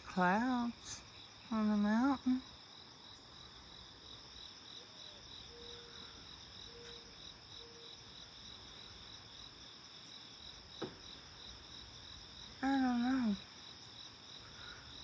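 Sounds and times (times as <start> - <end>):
high insect trill: 0.0 - 15.0
insects chirping: 0.0 - 15.0.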